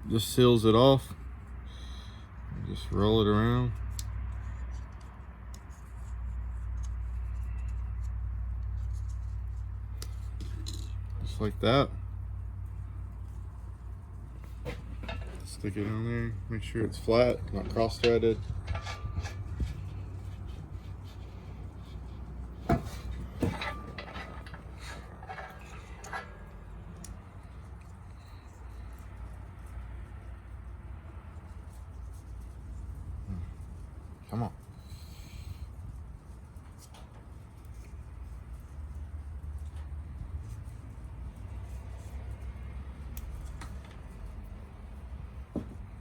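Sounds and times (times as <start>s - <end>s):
steady low hum: 0.0s - 46.0s
metal tools clinking: 14.4s - 16.1s, 16.8s - 27.6s.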